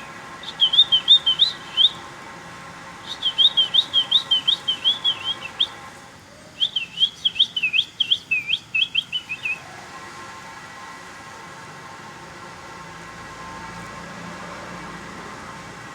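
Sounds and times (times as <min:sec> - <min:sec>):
small bird chirping: 0:00.0 - 0:02.0, 0:03.0 - 0:09.6
faint steady hum: 0:00.0 - 0:15.9.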